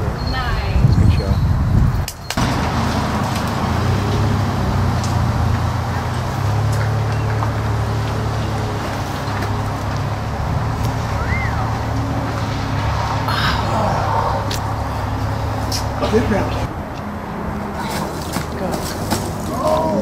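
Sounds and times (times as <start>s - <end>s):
rush of motor traffic: 0.0s - 20.0s
low engine drone: 2.4s - 18.1s.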